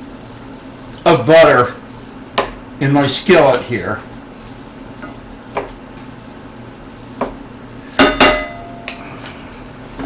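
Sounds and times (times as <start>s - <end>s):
utensils tapping on a skillet: 2.3s - 2.6s, 4.9s - 5.9s, 7.2s - 9.4s.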